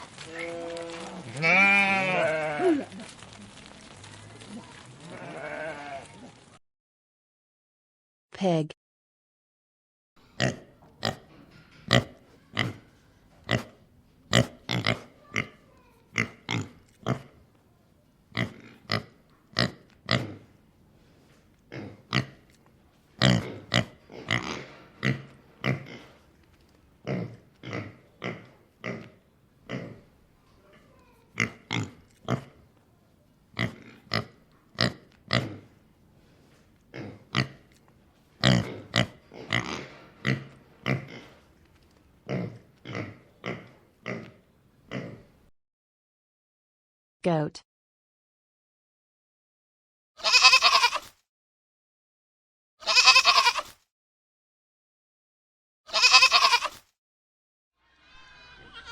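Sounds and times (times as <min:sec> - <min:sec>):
pig grunting and oinking: 0:10.2 - 0:17.4, 0:18.3 - 0:20.6, 0:21.7 - 0:22.6, 0:23.2 - 0:26.2, 0:27.0 - 0:30.1, 0:30.7 - 0:32.7, 0:33.5 - 0:35.8, 0:36.9 - 0:37.8, 0:38.4 - 0:41.4, 0:42.2 - 0:45.4.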